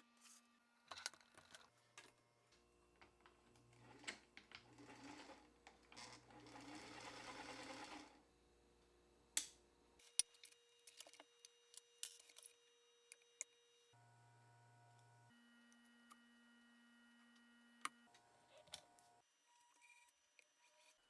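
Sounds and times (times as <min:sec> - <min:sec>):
sewing machine stitching: 0:03.8 - 0:08.2.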